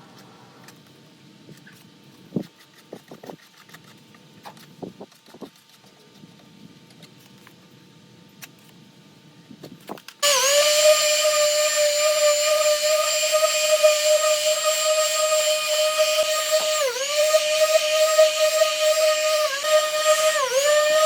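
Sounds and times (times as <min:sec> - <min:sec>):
power tool motor whining: 0:10.2 - 0:21.0.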